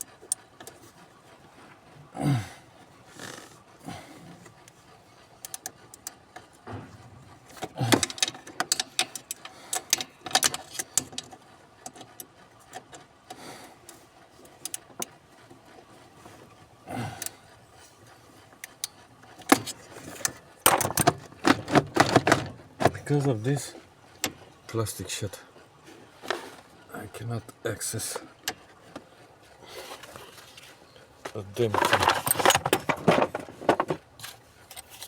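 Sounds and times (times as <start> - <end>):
small metallic rattles: 3.1 - 27.2, 31.3 - 35.0
tools clicking and knocking: 5.4 - 13.0, 18.6 - 23.4, 31.6 - 35.0.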